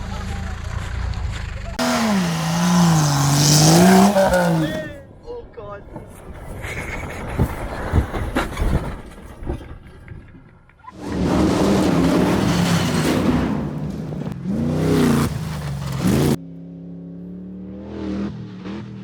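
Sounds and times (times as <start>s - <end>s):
truck engine at high revs: 0.2s - 5.0s, 11.0s - 19.0s.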